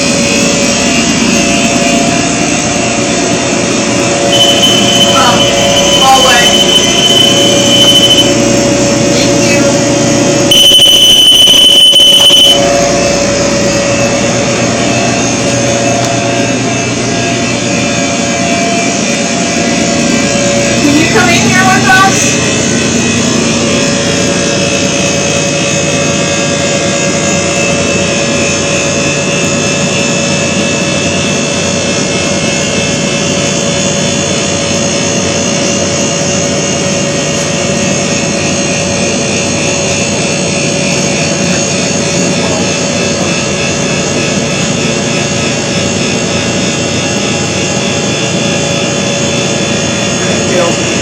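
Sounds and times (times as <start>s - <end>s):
faint steady hum: 3.0s - 16.6s.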